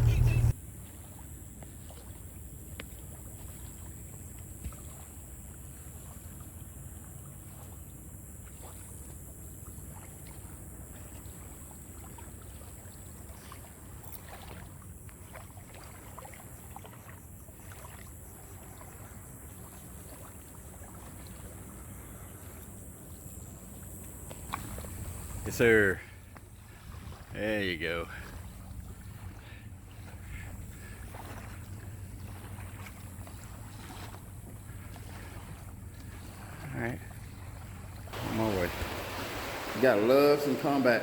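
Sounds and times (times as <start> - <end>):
steady low rumble: 0.0 - 0.6
faint high hiss: 38.2 - 41.0.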